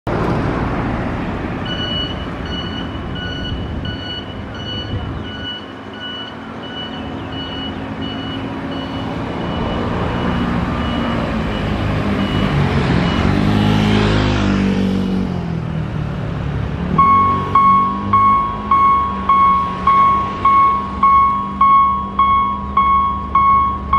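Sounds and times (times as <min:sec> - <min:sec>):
road traffic noise: 0:00.0 - 0:23.9
level crossing alarm beeping: 0:01.6 - 0:13.5, 0:17.0 - 0:23.9
vehicle engine passing by: 0:07.8 - 0:21.6.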